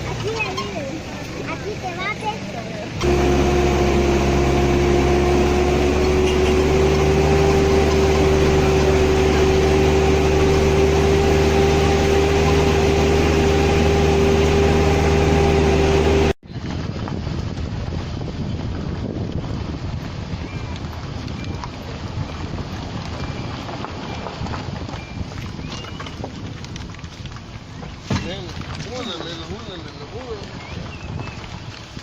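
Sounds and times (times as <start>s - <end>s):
vehicle engine droning: 0.0s - 25.3s.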